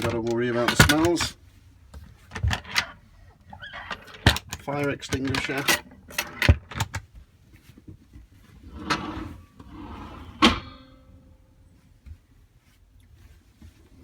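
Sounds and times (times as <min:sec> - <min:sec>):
door sliding rub: 0:08.7 - 0:10.5.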